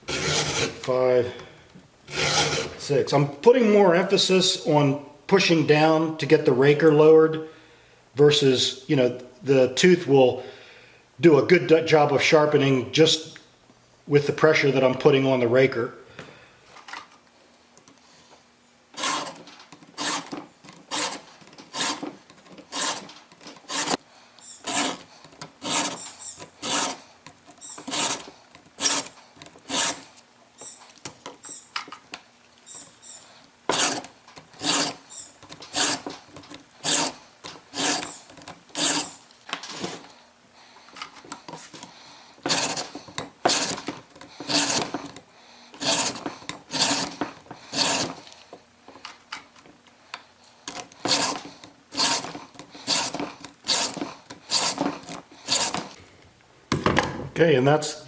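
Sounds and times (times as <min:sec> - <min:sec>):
file rasping on chainsaw chain: 0:00.1 - 0:00.9, 0:02.1 - 0:02.8, 0:19.0 - 0:19.4, 0:20.0 - 0:30.8, 0:32.7 - 0:36.2, 0:36.8 - 0:39.2, 0:42.4 - 0:48.3, 0:50.7 - 0:56.0.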